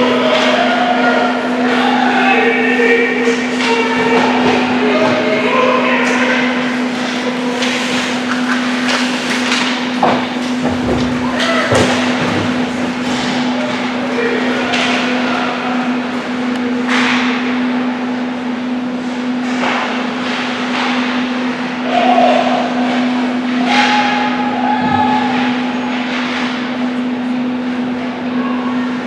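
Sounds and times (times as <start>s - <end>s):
arena hum: 0.0s - 16.8s
skates scraping on ice: 6.4s - 13.4s
hockey sticks or puck knocking: 7.0s - 12.9s.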